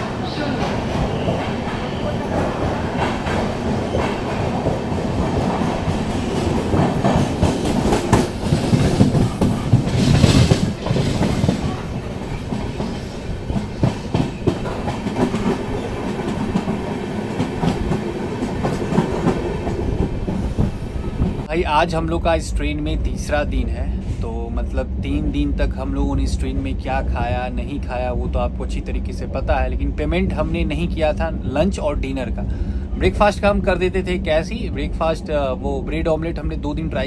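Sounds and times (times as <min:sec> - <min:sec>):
clickety-clack of train wheels: 0:00.0 - 0:21.5
train wheel rumble: 0:00.0 - 0:37.0.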